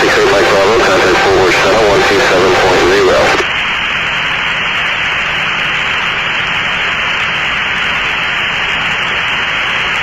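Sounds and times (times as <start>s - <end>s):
faint low hum: 0.0s - 3.5s
radio static hiss: 0.0s - 6.3s.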